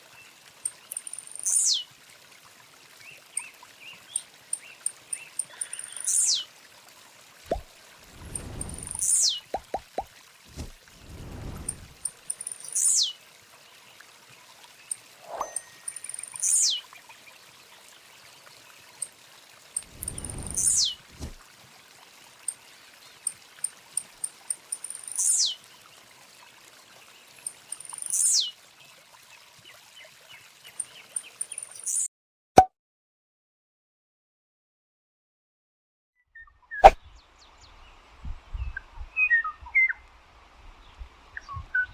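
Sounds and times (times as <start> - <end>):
short high bird chirps: 0.9 - 1.8, 4.1 - 6.4, 7.5 - 9.7, 11.0 - 13.2, 15.2 - 16.8, 19.8 - 21.3, 24.8 - 25.6, 27.7 - 28.5, 36.7 - 37.0
bird whistle sliding down: 7.5 - 9.4, 10.5 - 13.1, 19.8 - 21.4.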